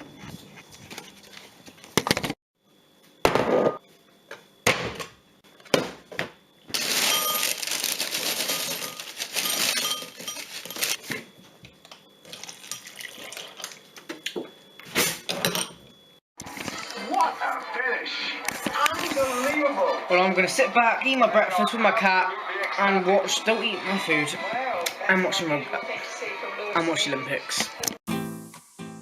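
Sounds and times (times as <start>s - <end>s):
liquid pouring: 12.3s - 13.8s.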